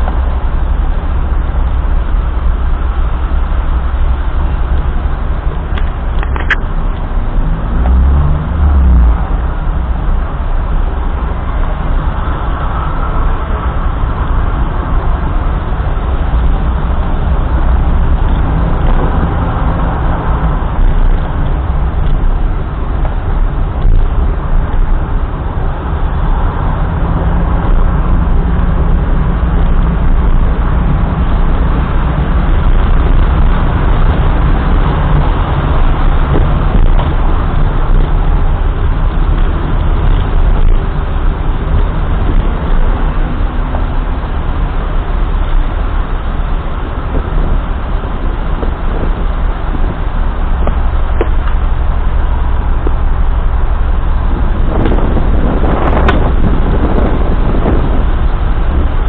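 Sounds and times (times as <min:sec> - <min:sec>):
car engine: 0:00.0 - 0:59.0
road noise: 0:00.0 - 0:59.0.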